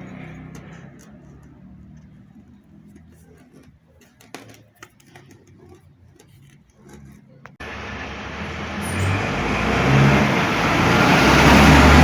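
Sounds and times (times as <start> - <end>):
small parts and tools clicking: 0.0 - 7.6.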